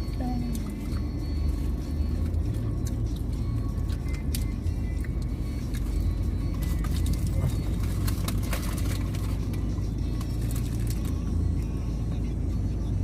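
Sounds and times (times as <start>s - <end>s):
car interior rumble: 0.0s - 13.0s.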